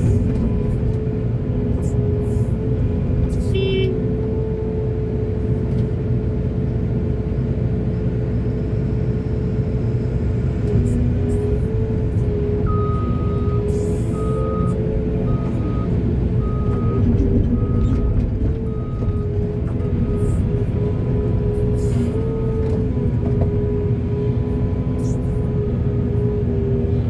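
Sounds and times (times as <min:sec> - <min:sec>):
heavy machinery engine running: 0:00.0 - 0:27.0
reversing alarm beeping: 0:12.6 - 0:19.3.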